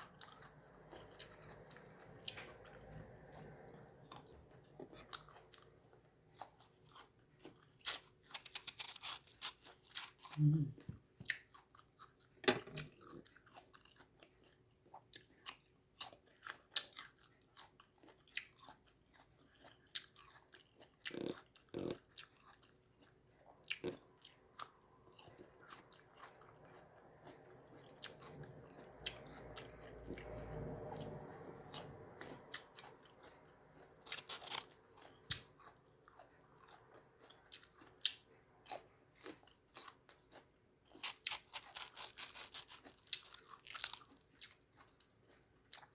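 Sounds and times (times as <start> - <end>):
biting and chewing crunches: 0.0 - 45.9
faint low rumble: 23.8 - 39.6.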